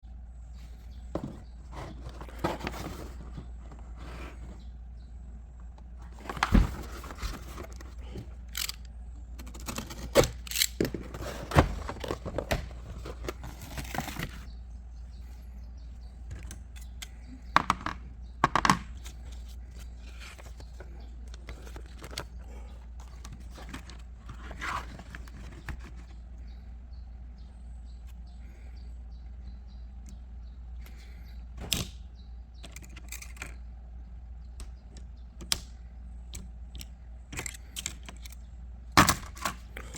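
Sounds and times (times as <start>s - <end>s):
steady low hum: 0.0s - 39.9s
handling clicks and rustles: 0.5s - 4.7s, 5.6s - 14.6s, 16.0s - 26.6s, 32.6s - 33.7s, 34.5s - 39.9s.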